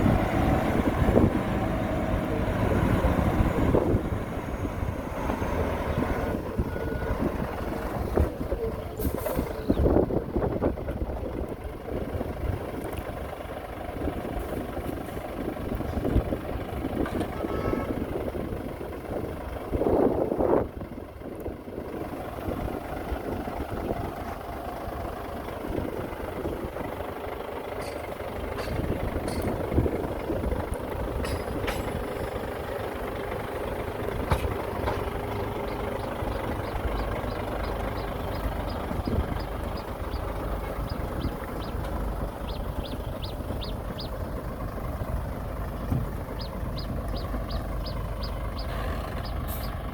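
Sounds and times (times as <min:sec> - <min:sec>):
heavy diesel machinery rumbling: 0:00.0 - 0:49.9.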